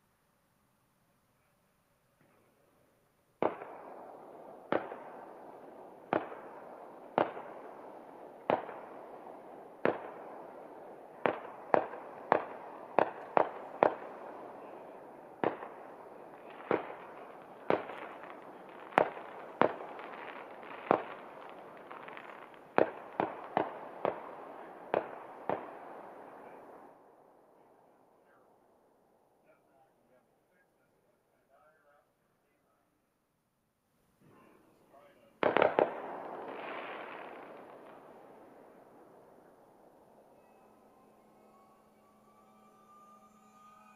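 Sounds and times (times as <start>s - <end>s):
distant fireworks bangs: 3.4s - 27.0s, 34.3s - 43.9s.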